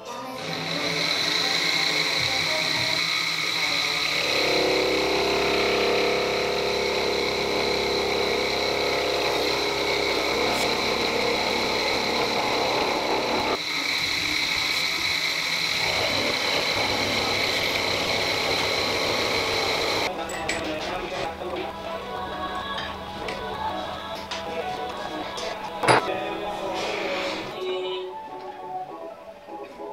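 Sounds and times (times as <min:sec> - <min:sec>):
metal cutting grinding noise: 0:00.2 - 0:27.6
milling spindle whine: 0:00.4 - 0:20.1.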